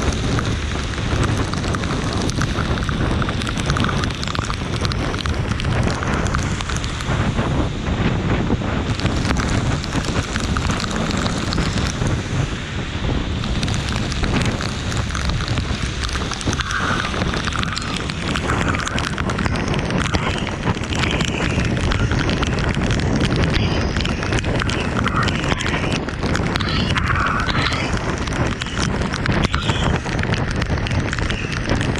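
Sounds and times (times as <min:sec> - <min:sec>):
rain pattering: 0:00.0 - 0:31.9
wind rumble on microphone: 0:00.0 - 0:31.9.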